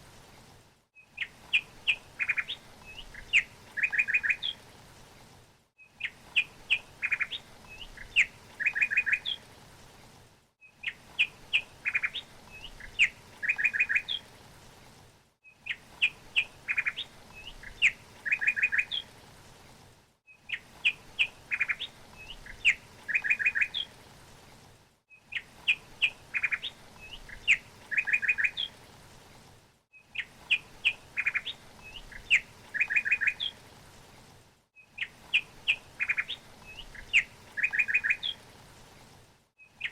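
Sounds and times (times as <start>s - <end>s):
songbird singing: 1.0s - 4.6s, 5.8s - 9.4s, 10.6s - 14.3s, 15.4s - 19.1s, 20.3s - 23.9s, 25.2s - 28.8s, 29.9s - 33.6s, 34.8s - 38.4s, 39.6s - 39.9s.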